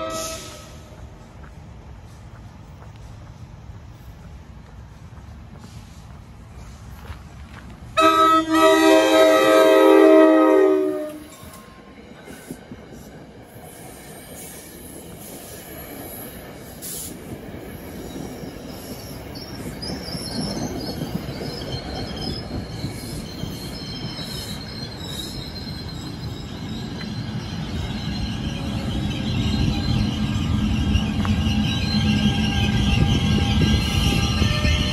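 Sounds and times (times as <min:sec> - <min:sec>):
train horn chord: 0:00.0 - 0:00.9, 0:08.0 - 0:11.3
train rumble: 0:00.0 - 0:34.9
wheel squeal: 0:13.7 - 0:34.9.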